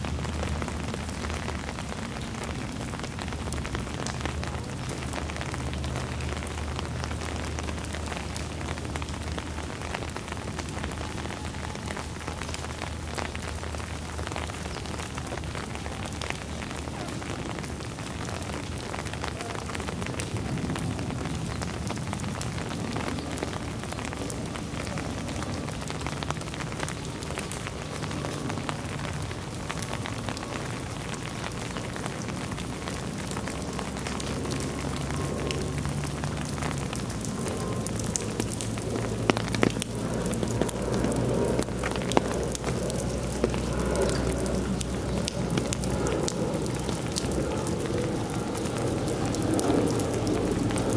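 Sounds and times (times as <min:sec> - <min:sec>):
rain falling: 0:00.0 - 0:50.9
raindrops ticking on surfaces: 0:00.0 - 0:50.9.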